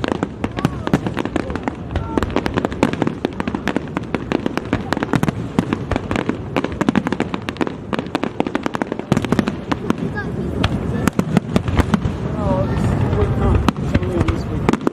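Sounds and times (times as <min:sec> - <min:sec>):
fireworks crackling: 0:00.0 - 0:14.9.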